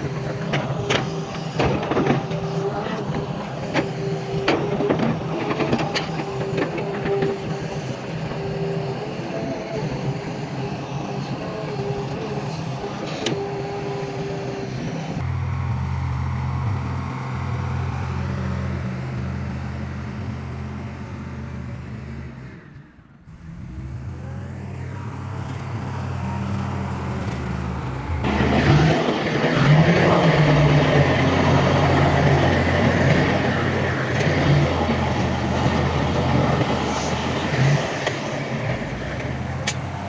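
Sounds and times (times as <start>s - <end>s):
heavy diesel machinery engines: 15.2s - 40.0s.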